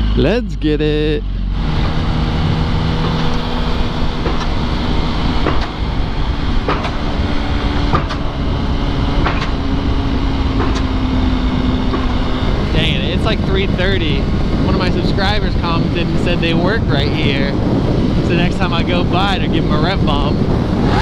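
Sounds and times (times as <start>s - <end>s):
wind rush on microphone: 1.2s - 21.0s
motorcycle engine pulling away: 1.3s - 13.4s.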